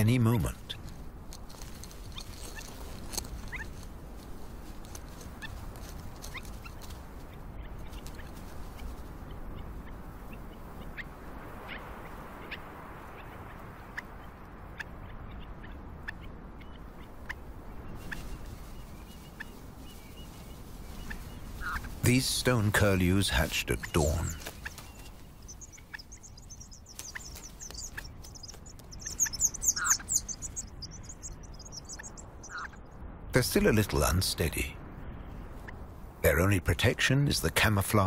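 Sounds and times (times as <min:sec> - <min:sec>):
steady low hiss: 0:00.0 - 0:38.0
sharp bird chirps: 0:24.0 - 0:32.9.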